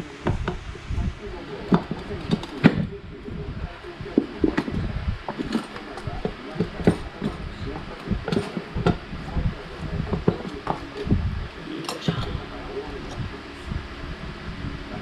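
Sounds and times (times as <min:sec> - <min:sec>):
hand tools clinking on metal: 0:05.4 - 0:08.8.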